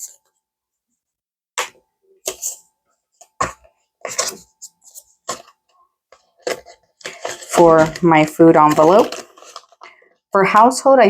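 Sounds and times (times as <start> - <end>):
banknotes rustling: 3.2 - 10.1.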